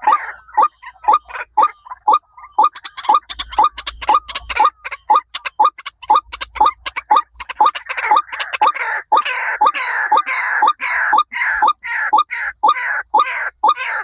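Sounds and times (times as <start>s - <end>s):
bird calling with sharp clicks: 0.0s - 14.0s.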